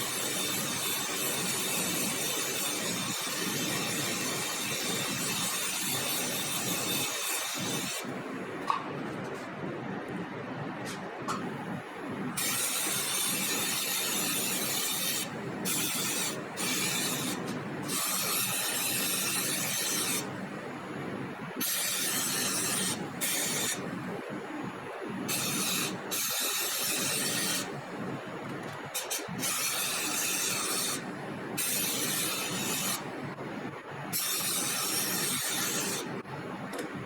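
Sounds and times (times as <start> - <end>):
compressed air hissing from air tool: 12.4 - 20.3, 21.6 - 23.8, 25.3 - 27.7.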